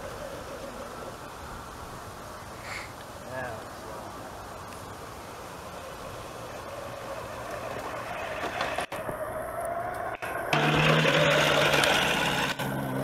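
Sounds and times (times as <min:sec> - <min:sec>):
steady rushing noise: 0:00.0 - 0:13.0
electric motors whining: 0:05.7 - 0:13.0.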